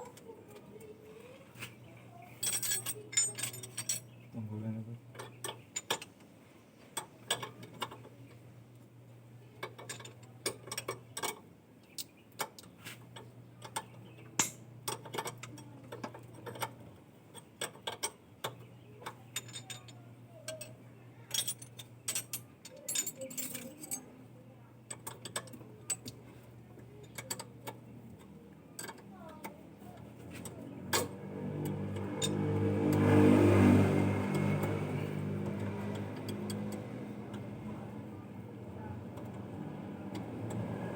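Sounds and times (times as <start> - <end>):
low steady hum: 0.0 - 40.9
metal tools clinking: 2.2 - 4.2, 13.6 - 18.2, 19.0 - 24.1.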